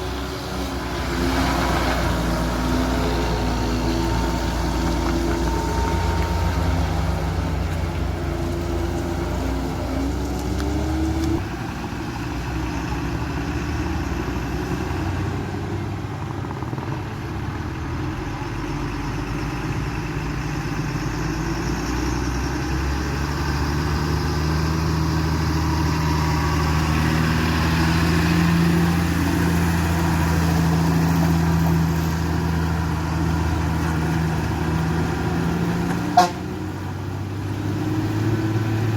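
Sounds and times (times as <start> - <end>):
truck engine running: 0.0 - 38.9.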